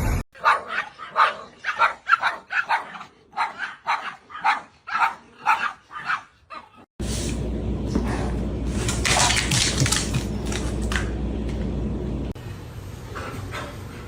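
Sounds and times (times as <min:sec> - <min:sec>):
dog barking quickly: 0:00.4 - 0:06.8.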